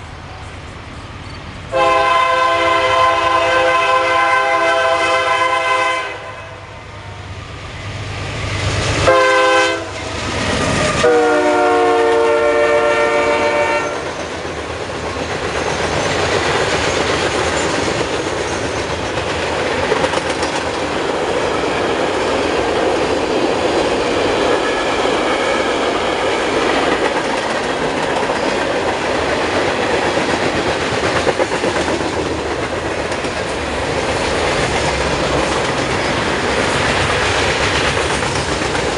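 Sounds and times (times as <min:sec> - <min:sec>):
train rumble: 0:00.0 - 0:38.9
locomotive air horn blasts: 0:01.7 - 0:06.7, 0:09.0 - 0:10.1, 0:10.9 - 0:14.0
wheels clicking over rail joints: 0:14.0 - 0:24.6, 0:26.5 - 0:38.9.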